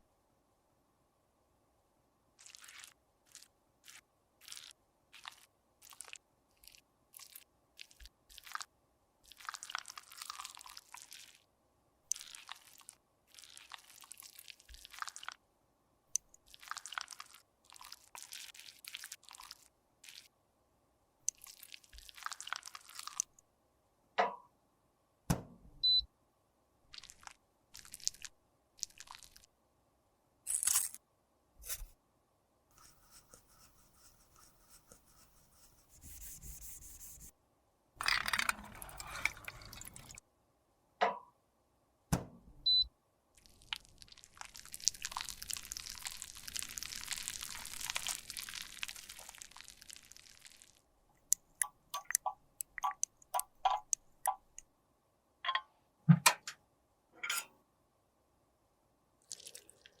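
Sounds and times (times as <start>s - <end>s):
small tools tapping and clicking: 51.3s - 54.6s.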